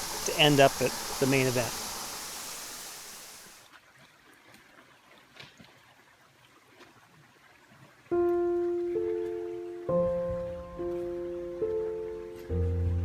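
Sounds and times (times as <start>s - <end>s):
rushing water: 0.0s - 10.3s.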